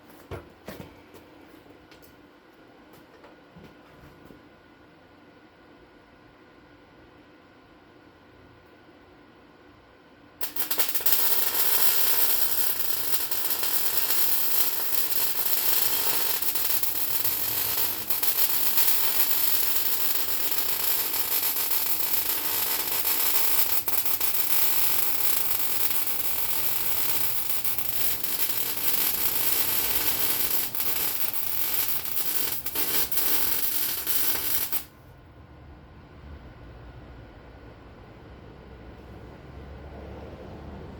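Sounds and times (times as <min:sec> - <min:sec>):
welding arc crackling: 0:10.4 - 0:34.9.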